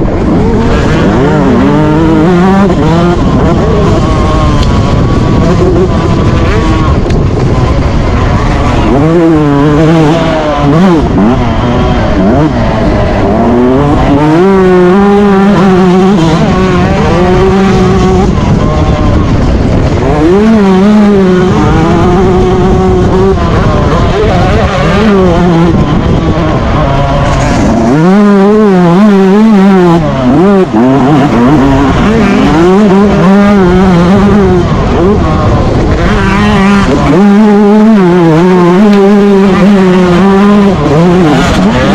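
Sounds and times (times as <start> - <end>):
motocross engine revving: 0.0 - 41.9.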